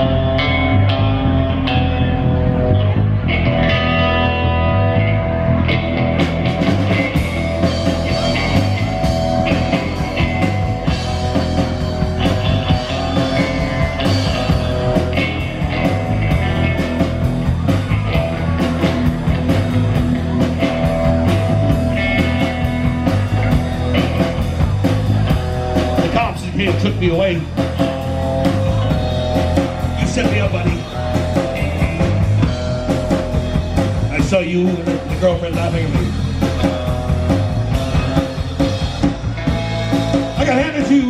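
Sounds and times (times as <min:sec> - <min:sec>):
bass guitar: 0:00.0 - 0:41.0
electric guitar: 0:00.0 - 0:41.0
drum kit and cymbals: 0:06.0 - 0:41.0.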